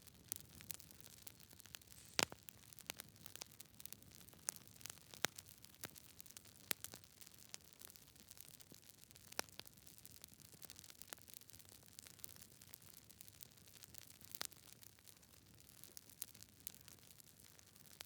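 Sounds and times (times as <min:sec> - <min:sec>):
campfire crackling: 0:01.8 - 0:02.5
faint hiss: 0:01.8 - 0:02.5.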